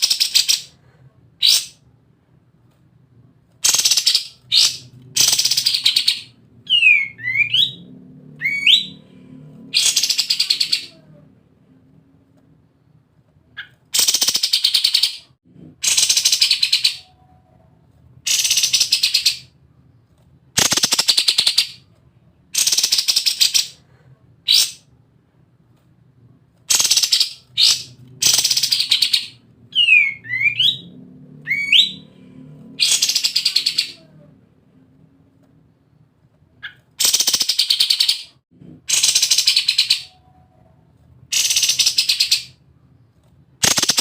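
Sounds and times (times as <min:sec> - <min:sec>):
songbird rapid rattling song: 0:43.6 - 0:44.0.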